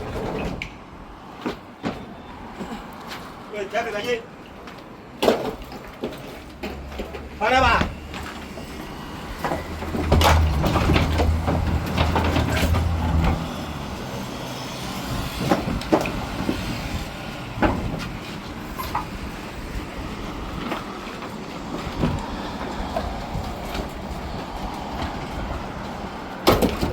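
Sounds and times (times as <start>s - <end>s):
sharp knocks and clatters: 9.4s - 13.6s.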